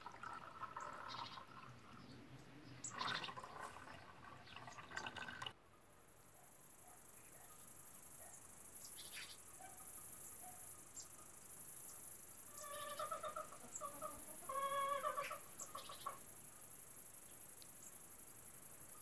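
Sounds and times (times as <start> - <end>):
high insect drone: 6.0 - 19.0.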